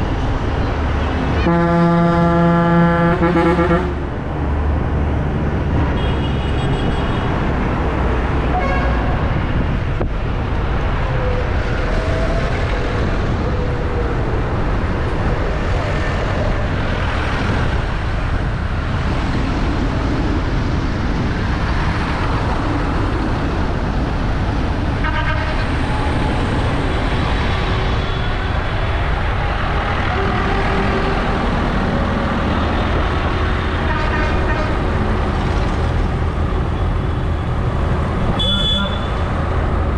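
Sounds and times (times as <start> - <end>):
tractor engines droning: 0.0 - 39.9
short horn toots: 1.4 - 4.0, 38.4 - 39.1.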